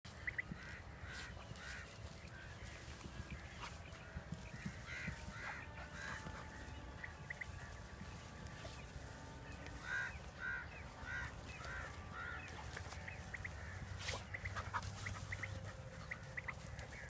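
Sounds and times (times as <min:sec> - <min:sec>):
birds calling: 0:00.1 - 0:17.0.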